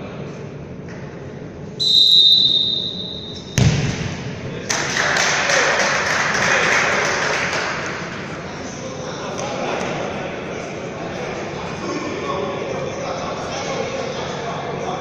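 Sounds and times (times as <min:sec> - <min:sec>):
referee's whistle blast: 0:01.8 - 0:03.6
ball strike thud: 0:03.6 - 0:04.4.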